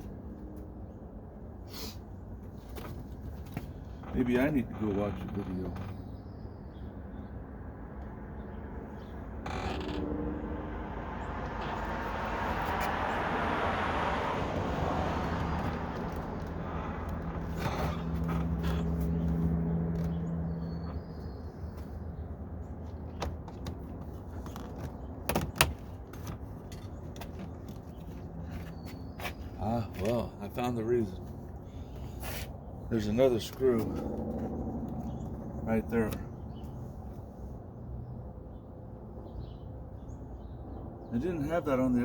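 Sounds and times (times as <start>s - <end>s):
vehicle passing: 7.6s - 22.8s, 28.2s - 37.9s.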